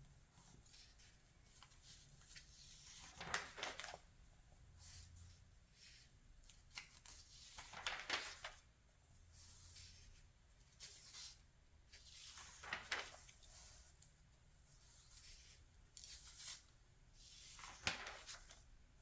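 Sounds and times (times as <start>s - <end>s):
paper rustling: 0.3s - 4.2s, 4.8s - 8.7s, 9.4s - 14.0s, 14.8s - 18.7s
magazine pages turning: 0.5s - 4.1s, 5.8s - 8.7s, 10.7s - 14.0s, 14.8s - 18.7s.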